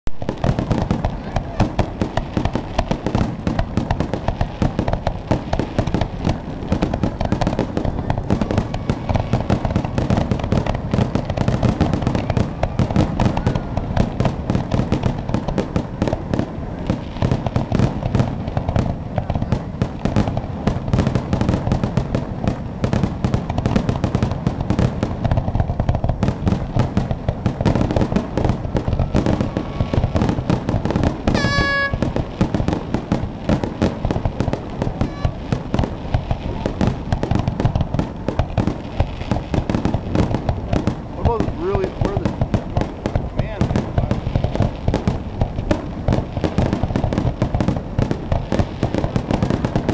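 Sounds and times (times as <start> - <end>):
fireworks shell bursts: 31.3 - 32.5, 34.8 - 35.5
brief pitched tone: 31.4 - 32.0, 35.0 - 35.4.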